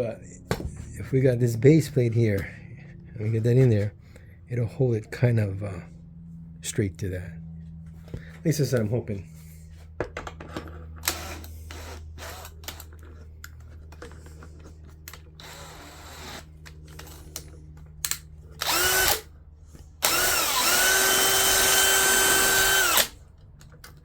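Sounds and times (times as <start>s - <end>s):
electric drill whine: 11.0s - 12.8s, 15.4s - 17.2s, 18.6s - 19.3s, 20.0s - 23.2s.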